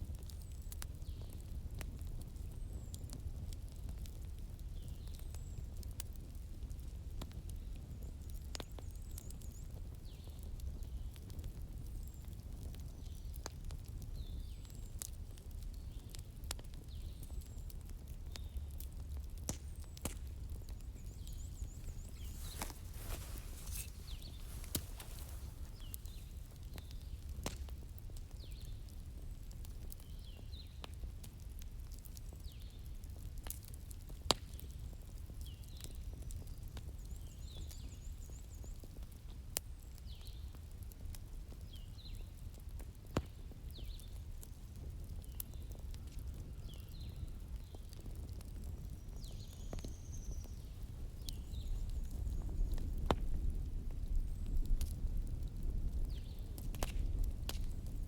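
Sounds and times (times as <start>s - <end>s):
wood fire crackling and popping: 0.0s - 58.0s
bird chirping: 20.8s - 26.4s.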